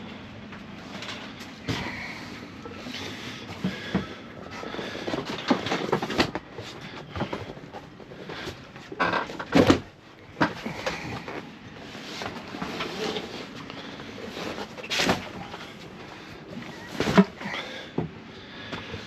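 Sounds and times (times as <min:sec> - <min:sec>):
knocks and clatter of gear: 0:03.6 - 0:11.5.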